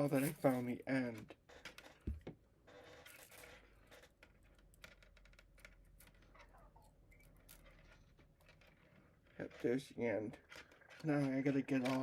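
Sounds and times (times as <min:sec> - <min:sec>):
plastic filament clicking and rustling: 0:03.0 - 0:12.0.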